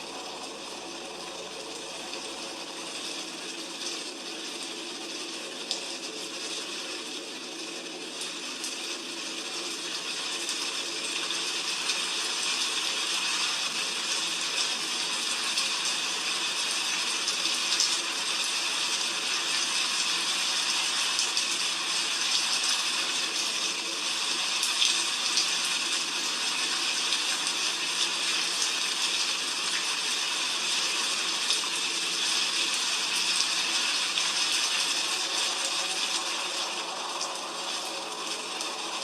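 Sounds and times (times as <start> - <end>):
heavy rain falling: 32.5 - 39.0.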